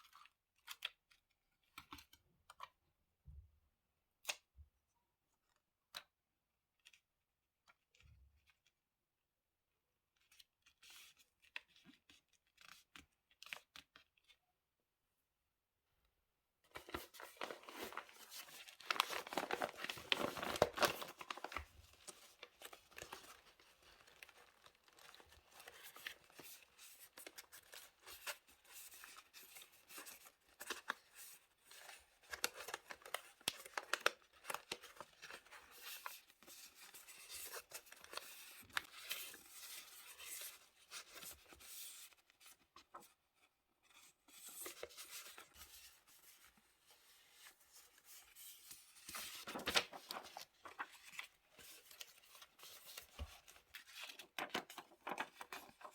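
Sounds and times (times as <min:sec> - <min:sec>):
paper rustling: 0:16.7 - 0:55.9.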